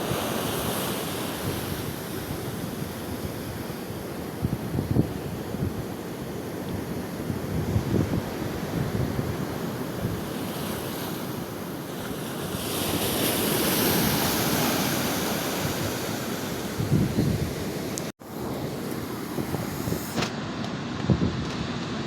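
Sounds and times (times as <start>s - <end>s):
ocean surf washing: 0.0s - 22.0s
wind buffeting microphone: 1.4s - 10.5s, 13.8s - 22.0s.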